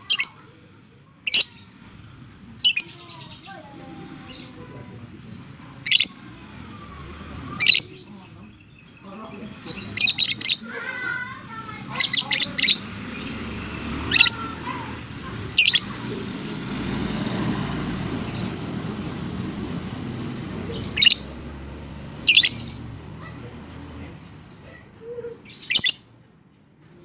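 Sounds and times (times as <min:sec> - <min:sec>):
lovebird shrill calls: 0:05.9 - 0:06.2, 0:10.0 - 0:10.6, 0:14.1 - 0:14.5, 0:15.6 - 0:16.0, 0:20.8 - 0:21.3, 0:22.3 - 0:22.8, 0:25.6 - 0:26.0.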